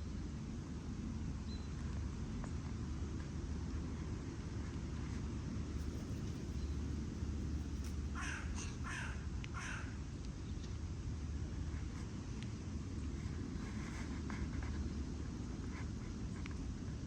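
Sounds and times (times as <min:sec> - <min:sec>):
crow cawing: 0:07.8 - 0:10.0.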